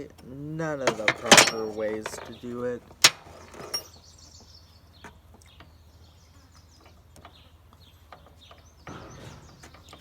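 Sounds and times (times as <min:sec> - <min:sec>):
birds chirping: 0:00.2 - 0:10.0
metal parts clattering: 0:00.8 - 0:02.4, 0:03.0 - 0:03.9
tool clicks and knocks: 0:00.8 - 0:02.4.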